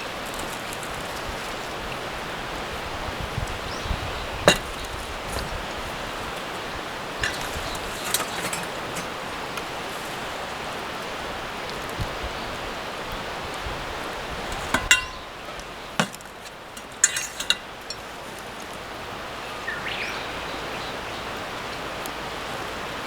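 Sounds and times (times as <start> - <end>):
sharp knocks and clinks: 4.5 - 5.6, 7.2 - 9.2, 14.5 - 18.6.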